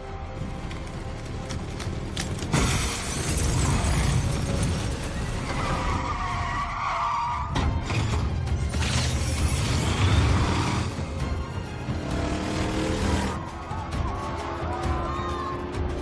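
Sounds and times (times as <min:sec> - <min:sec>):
soundtrack music: 0:00.0 - 0:16.0
car engines running hard: 0:09.4 - 0:13.4.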